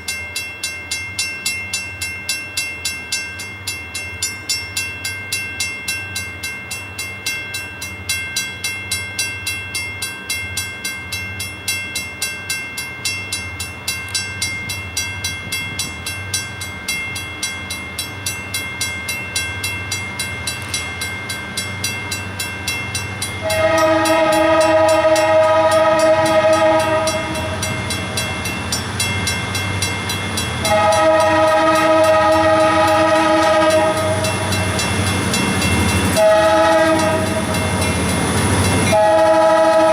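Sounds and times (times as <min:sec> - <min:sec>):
crossing bell ringing: 0:00.0 - 0:39.9
locomotive air horn blasts: 0:23.4 - 0:27.6, 0:30.6 - 0:34.2, 0:36.1 - 0:37.6, 0:38.9 - 0:39.9.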